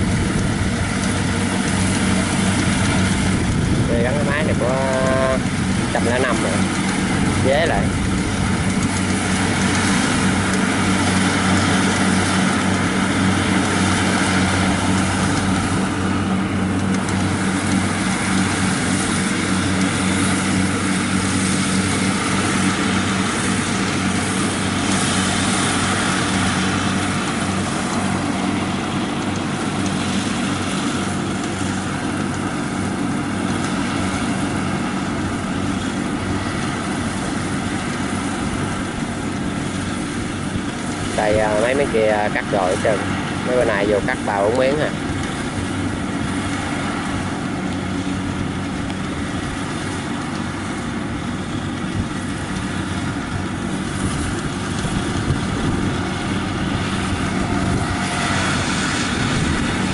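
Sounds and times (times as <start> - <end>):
combine harvester engine humming: 0.0 - 59.9.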